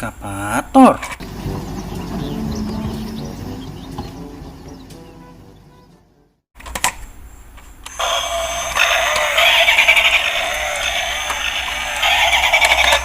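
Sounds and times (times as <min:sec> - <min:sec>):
clicks: 0:06.6 - 0:13.0
toy speaker electronic melody: 0:07.9 - 0:13.0.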